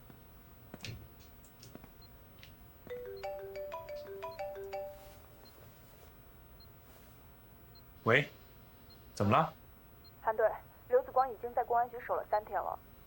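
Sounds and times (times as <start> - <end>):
marimba-like phone ringtone: 2.9 - 5.6.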